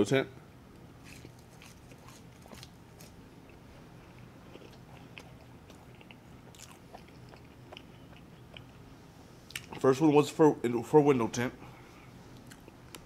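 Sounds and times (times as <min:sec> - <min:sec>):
chewing food: 0:01.0 - 0:08.8.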